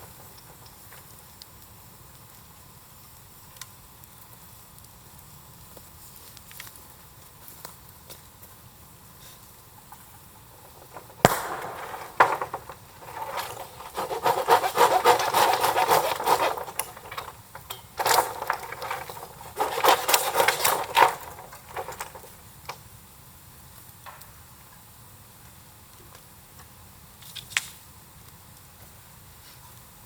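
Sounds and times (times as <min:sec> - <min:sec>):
crackly scraping and rubbing: 0:09.3 - 0:22.8
sharp knocks: 0:10.8 - 0:21.4.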